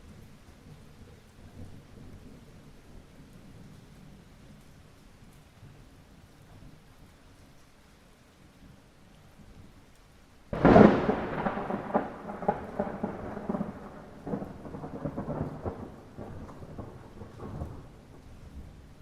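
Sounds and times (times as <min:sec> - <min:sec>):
light rain falling: 0:00.0 - 0:19.0
thunder rumbling: 0:10.5 - 0:19.0.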